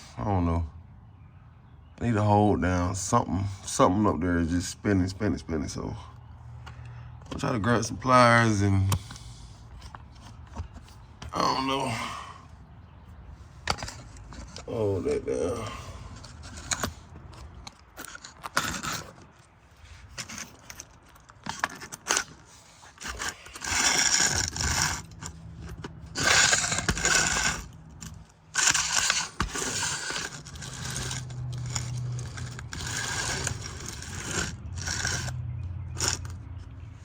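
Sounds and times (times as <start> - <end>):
metal hand tools clinking and scraping: 13.6 - 37.0.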